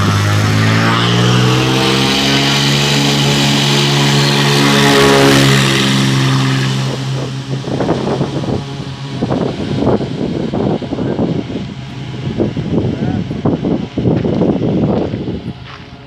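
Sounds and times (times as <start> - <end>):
propeller plane droning: 0.0 - 16.0
wind buffeting microphone: 0.0 - 16.0.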